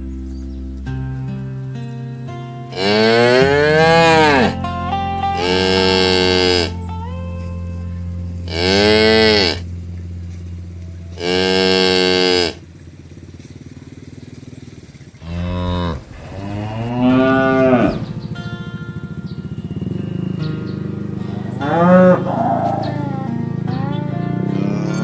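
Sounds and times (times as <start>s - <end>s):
cows mooing: 2.7s - 4.6s, 5.2s - 7.0s, 8.4s - 9.7s, 10.5s - 12.7s, 15.2s - 25.0s
steady low hum: 2.7s - 25.0s.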